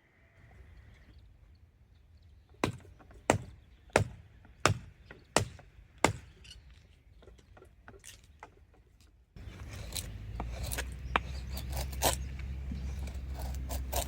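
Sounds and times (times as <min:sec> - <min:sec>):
axe chopping firewood: 0:02.6 - 0:06.4.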